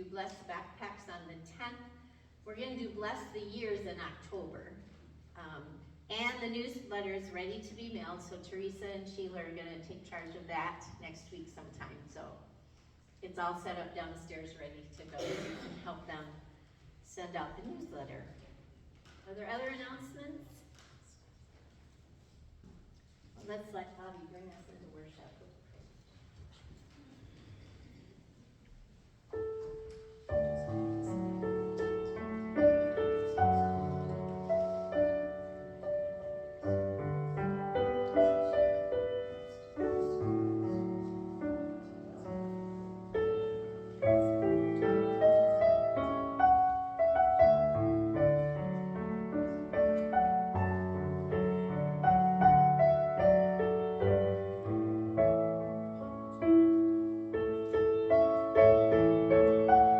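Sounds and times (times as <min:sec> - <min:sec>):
slow solo piano: 0:29.4 - 0:59.9.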